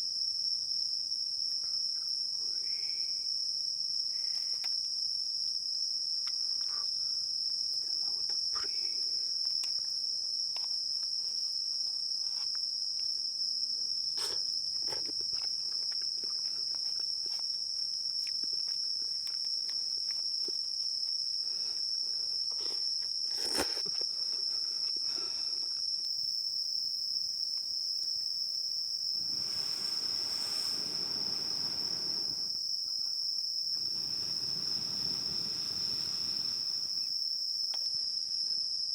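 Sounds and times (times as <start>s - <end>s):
insect chorus drone: 0.0s - 38.9s
soft hiss: 28.6s - 37.4s.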